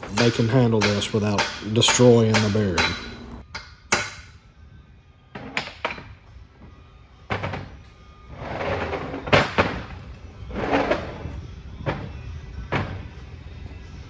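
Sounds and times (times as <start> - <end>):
hammer blows on metal: 0.0 - 4.4.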